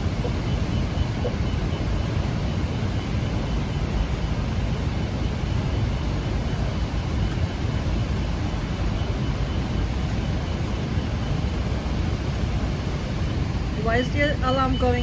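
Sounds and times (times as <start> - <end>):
depth alarm beeping: 0.0 - 3.8, 13.8 - 15.0
steady low rumble: 0.0 - 15.0.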